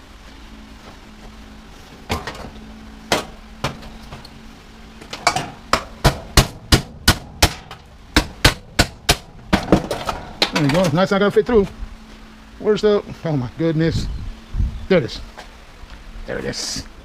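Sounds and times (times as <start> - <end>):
hammer striking metal: 5.2 - 9.8.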